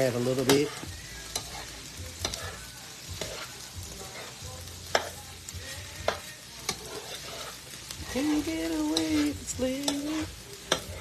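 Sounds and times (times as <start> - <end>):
fried rice sizzling in a pan: 0.0 - 11.0
utensil clicking against pan: 8.4 - 11.0.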